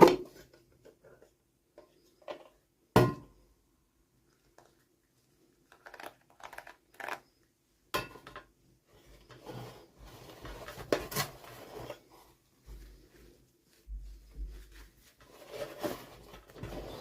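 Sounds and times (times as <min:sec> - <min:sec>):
packaging rustling: 0:05.6 - 0:07.4.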